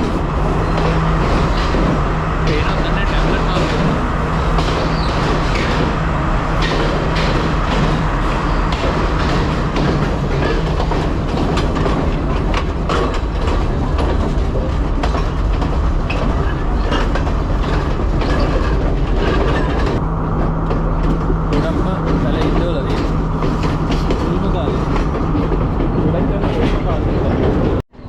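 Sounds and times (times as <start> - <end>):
wheels clicking over rail joints: 0.0 - 27.8
train rumble: 0.0 - 28.0.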